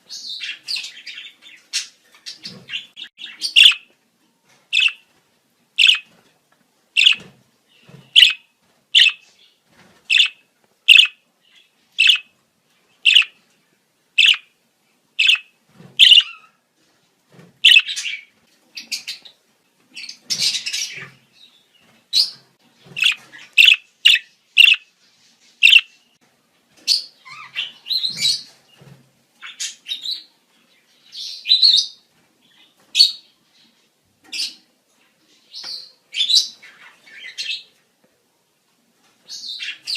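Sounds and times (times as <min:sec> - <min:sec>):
budgerigars chirping and chattering: 0:00.1 - 0:03.9, 0:04.7 - 0:05.0, 0:05.8 - 0:06.1, 0:07.0 - 0:08.4, 0:09.0 - 0:09.3, 0:10.1 - 0:12.3, 0:13.0 - 0:13.4, 0:14.2 - 0:14.5, 0:15.2 - 0:16.6, 0:17.6 - 0:19.3, 0:20.0 - 0:21.2, 0:22.2 - 0:24.9, 0:25.6 - 0:26.0, 0:26.9 - 0:28.6.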